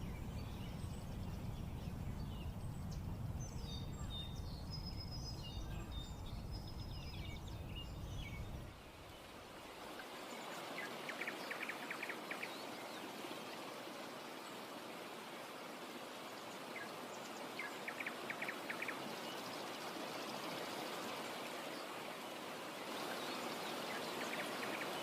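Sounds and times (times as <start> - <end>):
birds chirping and singing: 0.0 - 8.7
wind rumble on microphone: 0.0 - 9.9.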